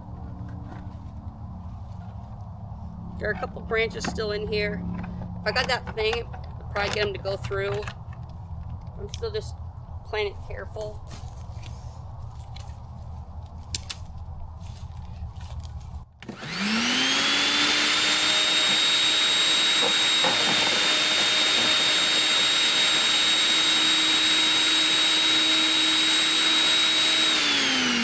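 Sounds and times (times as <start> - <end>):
wood chipper motor whining: 0.0 - 9.9, 16.2 - 28.0.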